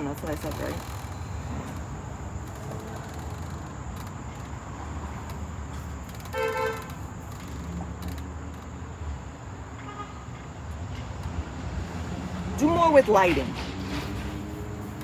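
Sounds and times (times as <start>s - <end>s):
car horn toot: 6.3s - 7.0s.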